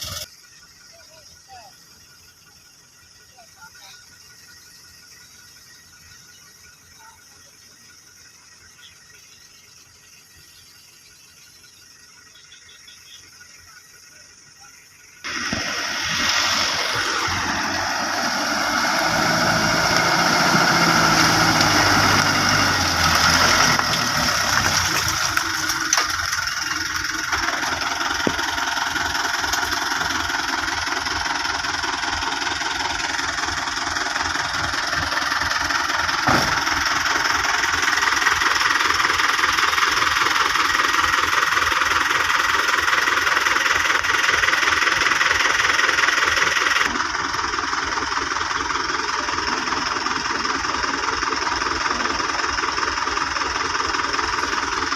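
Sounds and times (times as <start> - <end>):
vehicle engine knocking clatter: 18.9 - 54.9.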